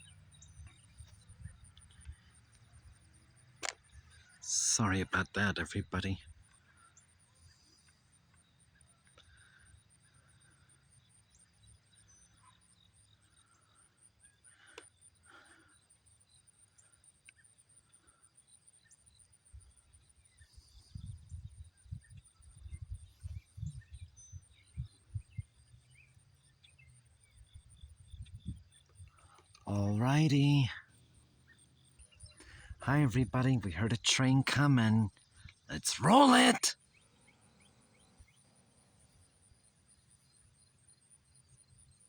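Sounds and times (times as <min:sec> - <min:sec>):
faint bird chirps: 0:00.0 - 0:33.4
wind rumbling on microphone: 0:20.6 - 0:25.6, 0:27.5 - 0:28.7.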